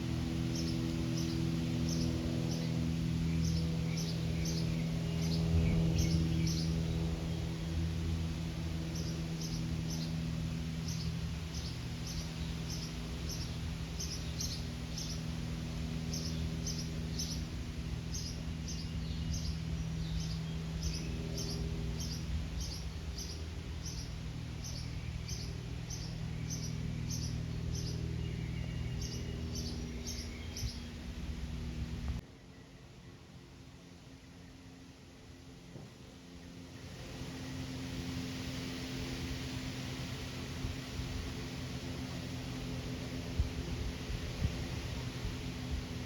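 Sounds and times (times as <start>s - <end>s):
airplane engine and propeller droning: 0.0s - 46.0s
small bird chirping: 0.5s - 7.4s, 8.9s - 32.1s.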